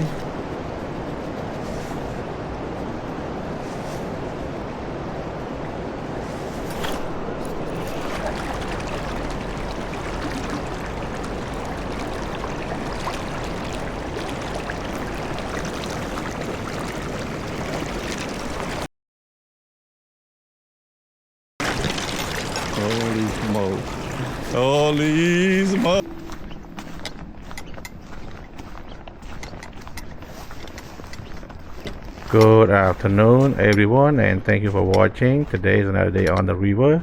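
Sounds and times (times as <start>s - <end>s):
river rushing: 0.0s - 18.9s, 21.6s - 26.4s.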